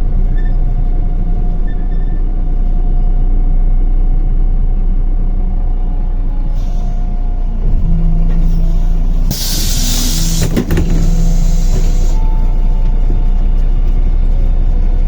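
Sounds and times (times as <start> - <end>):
bus diesel engine droning: 0.0 - 15.0
compressed air hiss: 9.3 - 12.2.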